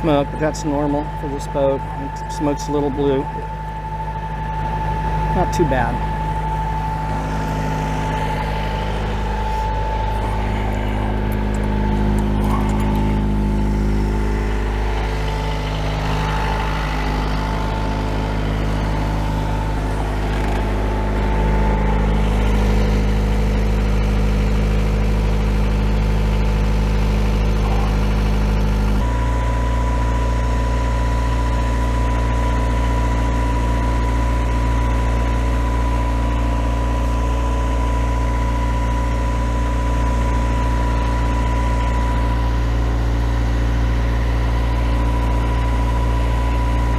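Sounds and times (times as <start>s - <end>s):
marine diesel engine running: 0.0s - 46.9s.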